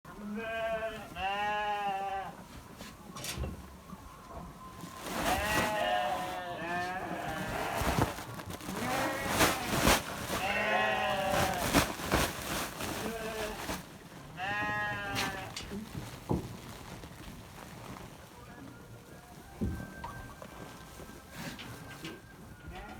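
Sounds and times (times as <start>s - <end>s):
sheep bleating: 0.2s - 2.4s, 5.0s - 12.0s, 12.8s - 13.8s, 14.4s - 15.6s.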